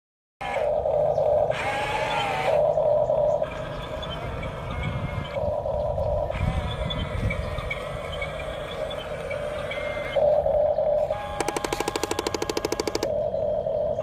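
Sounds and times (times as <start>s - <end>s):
toy electric motors whining: 0.4s - 14.0s.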